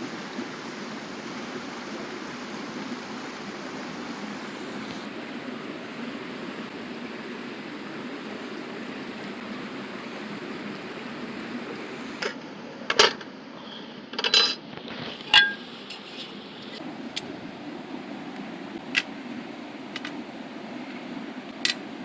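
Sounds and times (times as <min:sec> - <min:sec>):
river water flowing: 0:00.0 - 0:22.0
metallic clinks of cookware: 0:14.2 - 0:14.6, 0:15.3 - 0:16.1.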